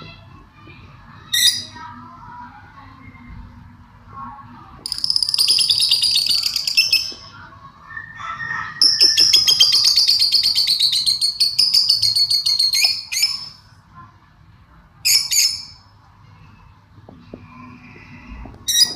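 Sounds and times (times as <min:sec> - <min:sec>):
bird chirping: 0:04.9 - 0:07.3, 0:08.8 - 0:13.6.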